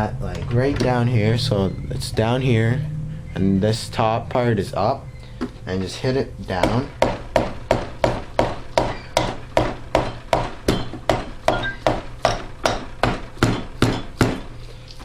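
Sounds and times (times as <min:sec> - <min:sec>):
hammer tapping on metal: 0:06.6 - 0:14.5.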